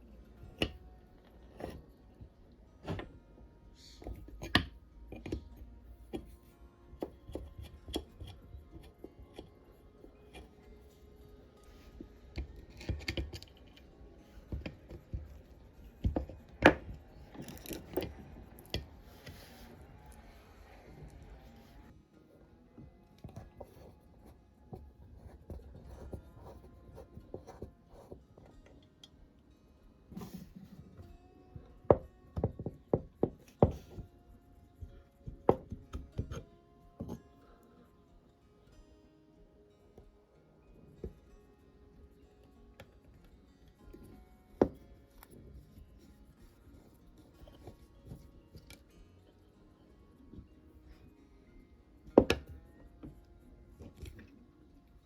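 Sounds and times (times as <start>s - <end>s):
metal parts clicking and knocking: 11.9s - 19.4s.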